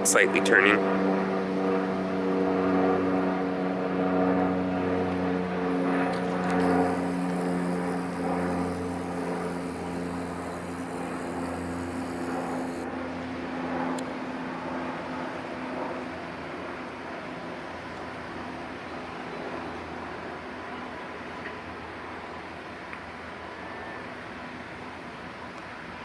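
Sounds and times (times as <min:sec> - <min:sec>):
boat diesel engine droning: 0:06.2 - 0:13.0.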